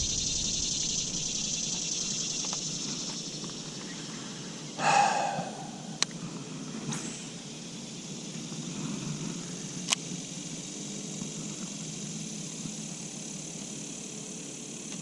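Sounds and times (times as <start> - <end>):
high-pitched insect drone: 0.0 - 15.0
short pitched call: 4.8 - 6.0.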